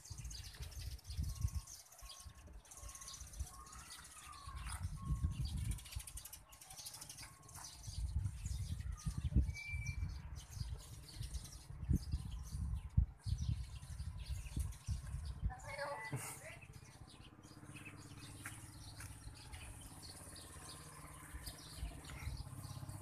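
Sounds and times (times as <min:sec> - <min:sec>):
birds chirping: 0:00.0 - 0:23.0
high bird whistle: 0:09.0 - 0:10.1.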